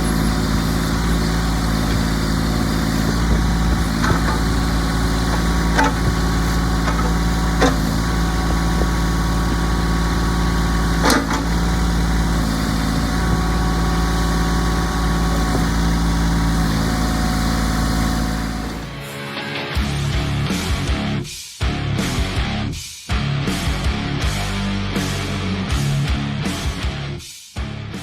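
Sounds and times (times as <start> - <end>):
engine knocks: 0.0 - 19.0
tractor diesel engine idling: 0.0 - 19.0.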